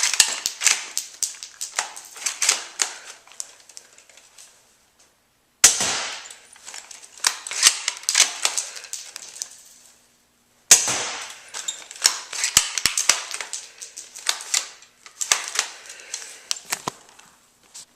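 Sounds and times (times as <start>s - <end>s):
airsoft rifle shot crack: 5.6s - 6.3s, 10.7s - 11.4s.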